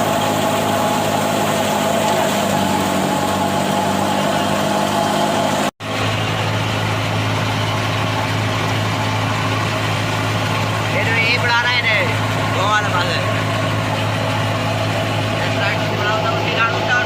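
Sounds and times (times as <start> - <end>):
farm machine engine running: 0.0 - 17.0.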